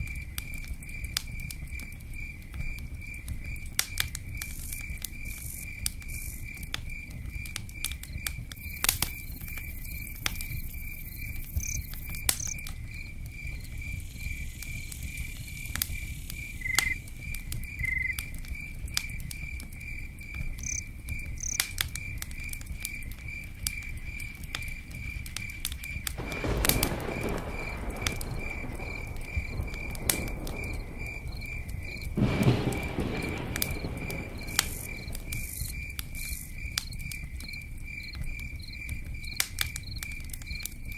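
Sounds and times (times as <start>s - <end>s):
campfire crackling and popping: 0.0s - 40.9s
cricket chirping: 0.0s - 40.9s
rain patter: 0.0s - 40.9s
low rumble: 26.2s - 36.8s.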